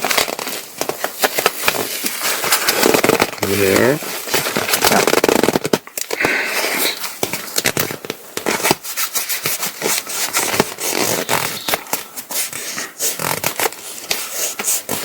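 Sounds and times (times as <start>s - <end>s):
nylon fabric rustling and crinkling: 0.0s - 6.0s, 6.8s - 15.0s.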